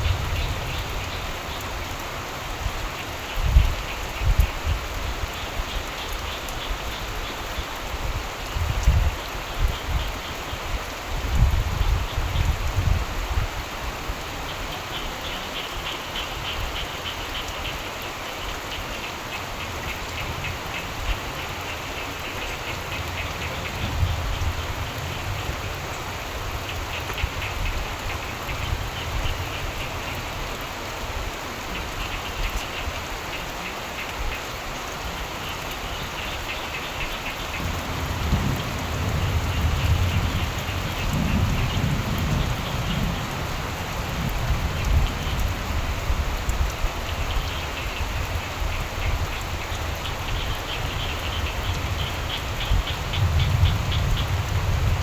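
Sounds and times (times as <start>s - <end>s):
low rumble of thunder: 0.0s - 1.7s, 22.7s - 29.8s, 37.4s - 55.0s
frogs croaking: 0.0s - 10.9s, 13.6s - 55.0s
steady rain falling: 0.0s - 55.0s.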